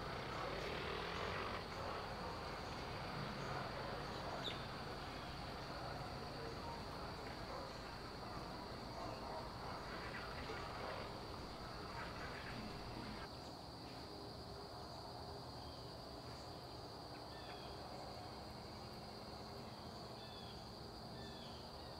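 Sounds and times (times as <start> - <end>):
street noise: 0.0 - 15.2
crickets droning: 0.0 - 21.9
insects chirring: 0.0 - 21.9.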